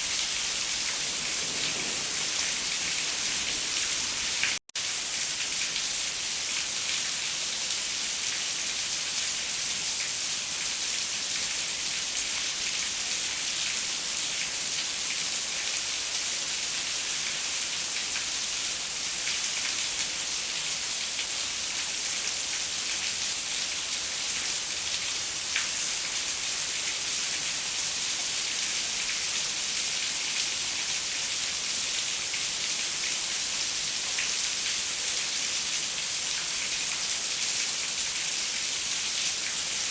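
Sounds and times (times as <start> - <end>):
rain on a window: 0.1 - 7.2.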